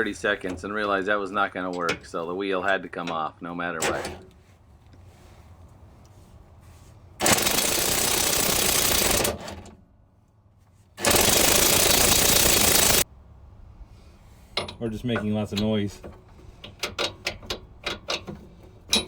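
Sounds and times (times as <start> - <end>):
impact wrench rattling: 7.2 - 9.5, 11.0 - 13.0.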